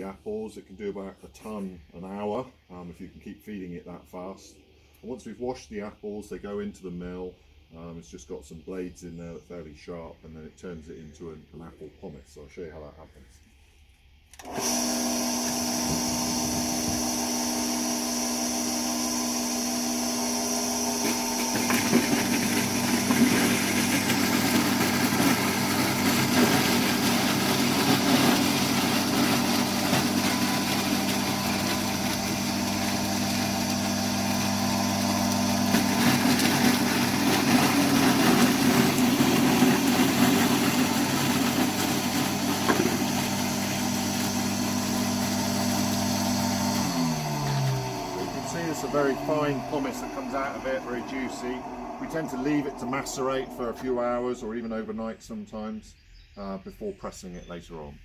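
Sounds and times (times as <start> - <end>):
apple mill motor hum: 14.3 - 54.3
apples grinding and crunching: 20.4 - 54.2.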